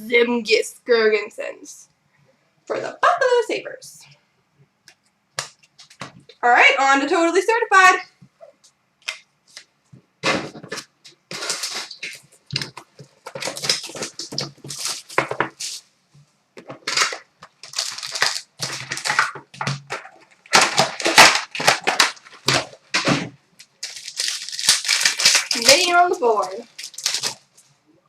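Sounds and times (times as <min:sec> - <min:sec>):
plastic and foil wrappers crinkling: 0:10.3 - 0:15.8, 0:16.6 - 0:27.8.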